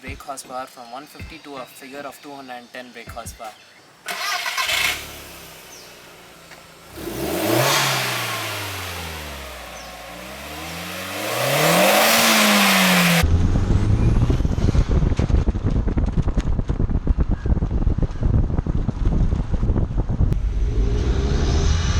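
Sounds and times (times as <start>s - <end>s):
car engine idling and revving: 4.1s - 17.0s, 17.6s - 21.9s
wind buffeting on microphone: 13.4s - 20.6s.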